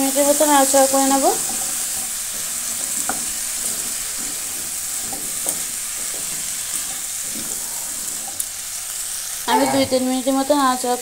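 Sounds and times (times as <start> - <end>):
vegetables sizzling in oil: 0.0 - 11.0
spatula scraping and knocking pan: 1.0 - 8.4.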